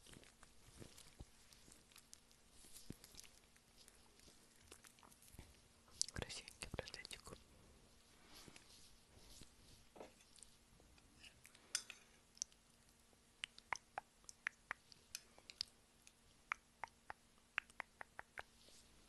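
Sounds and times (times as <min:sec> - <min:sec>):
chewing and wet mouth clicks: 0:00.1 - 0:05.4, 0:12.3 - 0:18.5.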